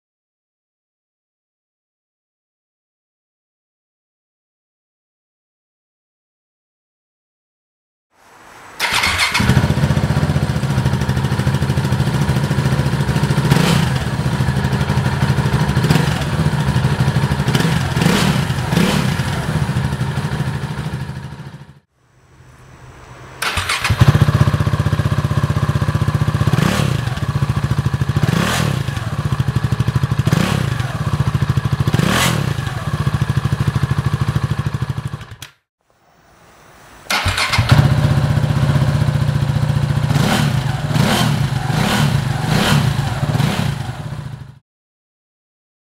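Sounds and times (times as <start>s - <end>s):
motorcycle engine idling loudly: 9.3s - 21.8s, 23.7s - 35.3s, 37.6s - 44.6s.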